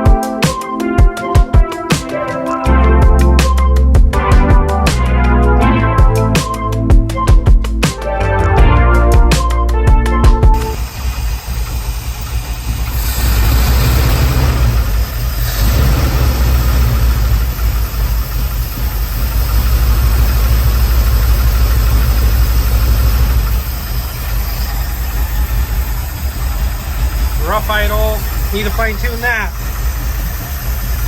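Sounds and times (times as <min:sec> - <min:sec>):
engine rough idle: 0:10.6 - 0:31.0.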